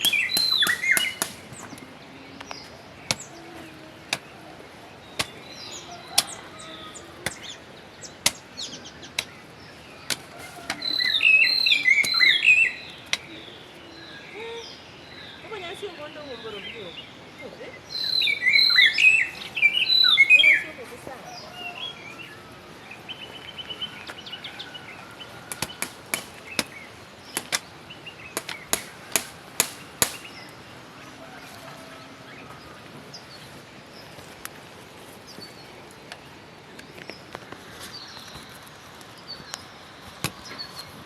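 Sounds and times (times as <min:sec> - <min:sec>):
garden tool chopping strikes: 0:00.0 - 0:01.8, 0:03.1 - 0:03.4, 0:04.1 - 0:04.4, 0:05.1 - 0:06.6, 0:07.2 - 0:11.2, 0:12.0 - 0:12.4, 0:25.5 - 0:27.7, 0:28.4 - 0:30.4
birds chirping: 0:00.0 - 0:31.2.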